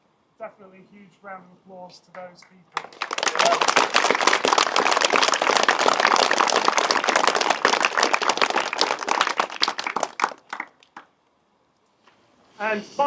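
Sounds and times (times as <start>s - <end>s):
group applauding: 2.2s - 11.1s.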